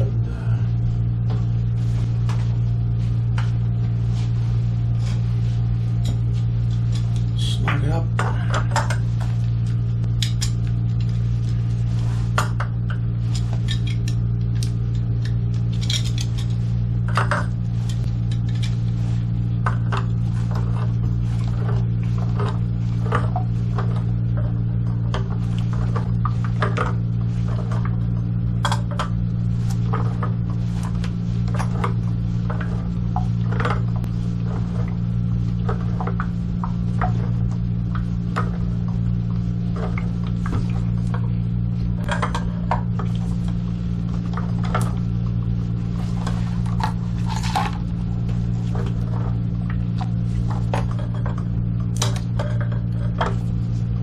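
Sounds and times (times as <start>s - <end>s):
low hum: 0.0s - 54.0s.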